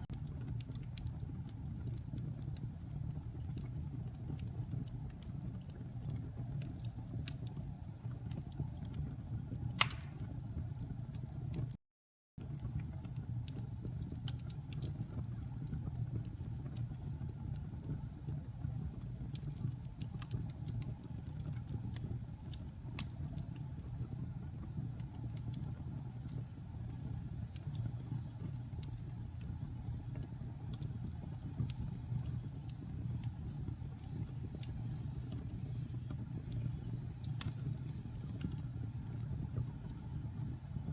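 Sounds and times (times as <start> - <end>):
wood fire crackling: 0.0 - 11.7, 12.4 - 40.9.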